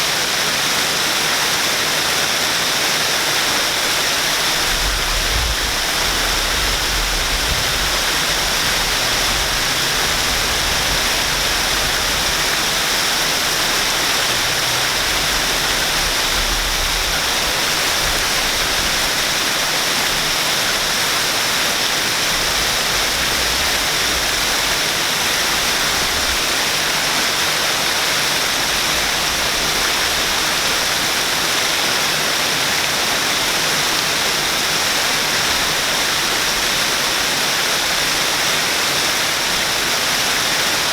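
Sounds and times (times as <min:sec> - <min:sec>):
waterfall rushing water: 0:00.0 - 0:40.9.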